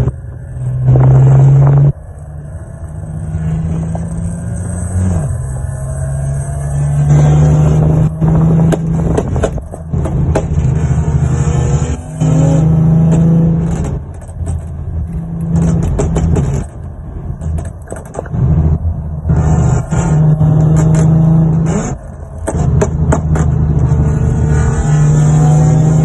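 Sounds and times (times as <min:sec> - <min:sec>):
car engine and exhaust revving: 0:00.0 - 0:26.0.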